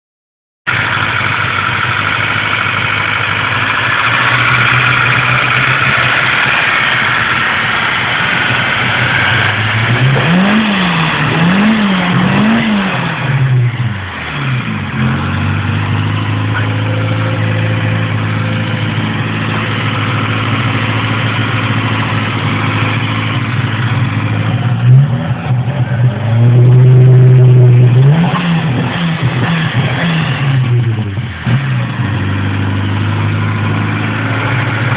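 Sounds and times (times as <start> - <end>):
car engine idling and revving: 0.7 - 34.9.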